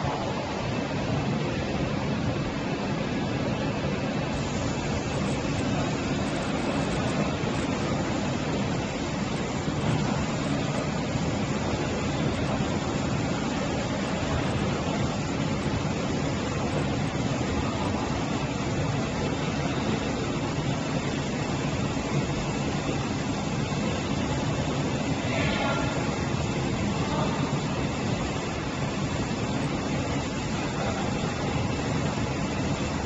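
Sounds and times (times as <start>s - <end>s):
factory machinery running: 0.0s - 33.0s.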